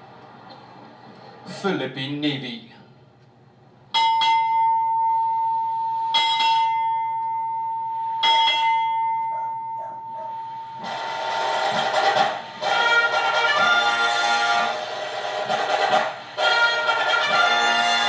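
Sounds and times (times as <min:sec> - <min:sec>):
ship's bell ringing: 0:03.9 - 0:10.9
brass band music: 0:10.8 - 0:18.0.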